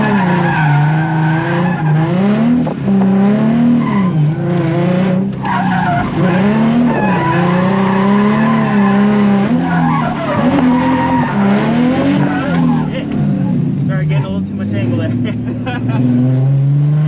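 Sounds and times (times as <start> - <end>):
car engine revving hard: 0.0 - 17.0
tyres skidding: 0.0 - 17.0.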